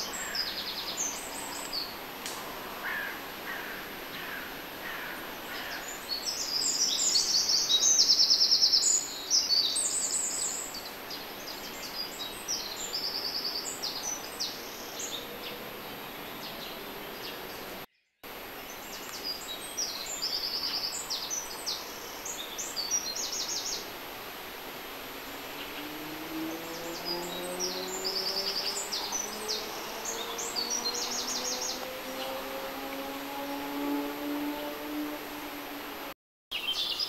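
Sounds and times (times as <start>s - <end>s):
outdoor background noise: 0.0s - 37.0s
songbird singing rapid trills: 5.5s - 17.7s, 25.3s - 32.6s.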